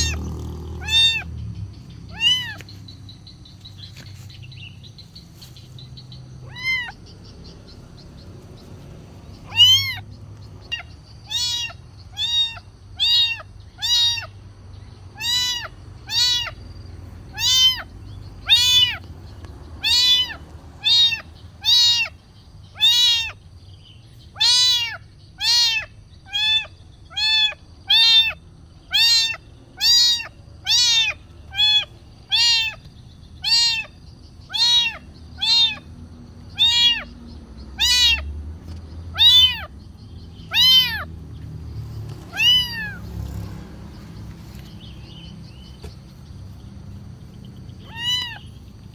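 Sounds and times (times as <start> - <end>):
kitten meowing: 0.0 - 1.3, 2.1 - 2.7, 6.4 - 7.0, 9.4 - 14.4, 15.2 - 16.6, 17.3 - 19.0, 19.8 - 22.2, 22.8 - 23.4, 24.3 - 35.9, 36.5 - 37.2, 37.8 - 38.3, 39.1 - 39.8, 40.4 - 41.1, 42.3 - 43.1, 47.8 - 48.6.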